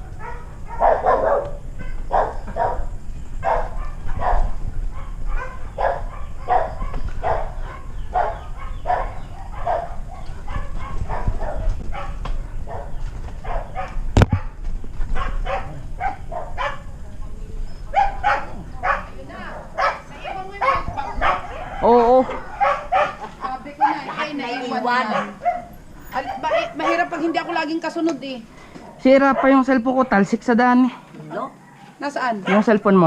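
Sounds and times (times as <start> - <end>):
dog barking: 0.1 - 17.0, 17.9 - 27.6, 28.8 - 29.9, 31.6 - 33.0.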